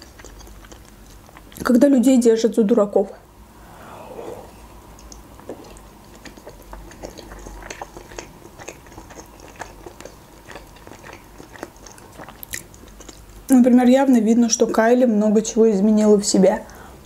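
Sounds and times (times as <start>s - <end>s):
person chewing with mouth closed: 0.0s - 1.7s, 3.6s - 13.5s.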